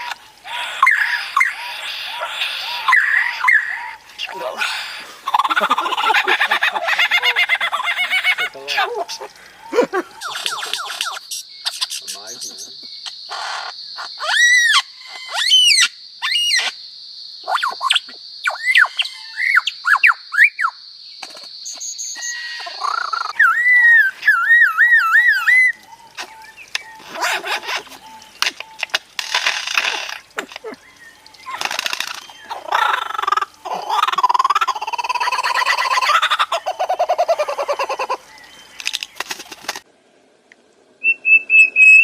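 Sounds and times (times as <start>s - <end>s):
bird whistling: 41.0s - 42.0s.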